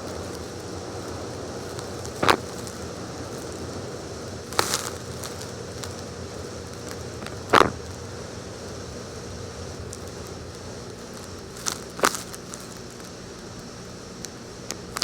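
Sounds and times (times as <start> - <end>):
steady low hiss: 0.0 - 15.0
short sharp crackling: 2.0 - 2.8, 7.2 - 7.9.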